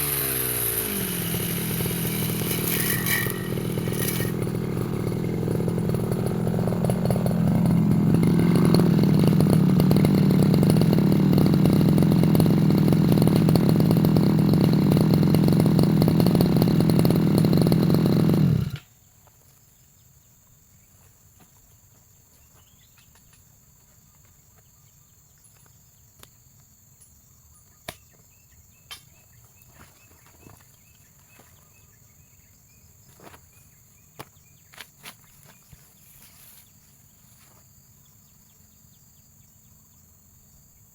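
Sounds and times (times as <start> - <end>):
brush cutter engine revving: 0.0 - 18.9.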